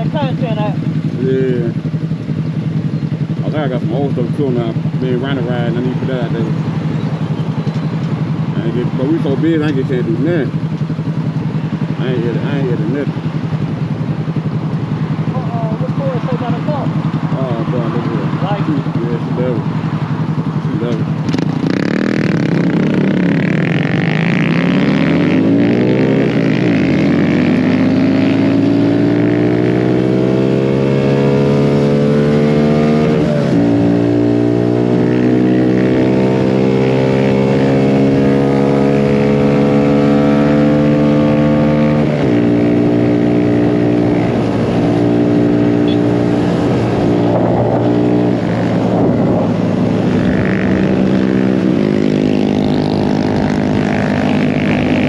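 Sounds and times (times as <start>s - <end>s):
wind rushing past: 46.3s - 51.8s.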